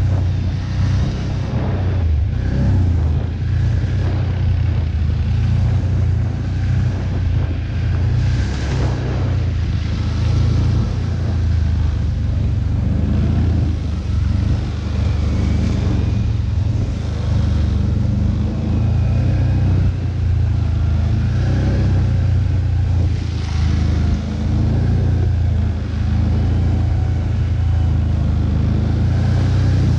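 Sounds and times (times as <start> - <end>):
quad bike engine running: 0.0 - 29.9.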